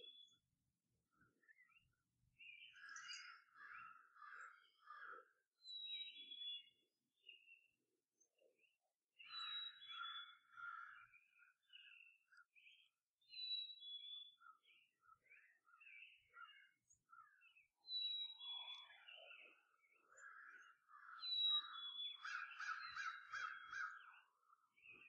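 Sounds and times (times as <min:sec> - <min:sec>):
birds chirping and whistling: 0:09.2 - 0:10.7, 0:17.4 - 0:25.0.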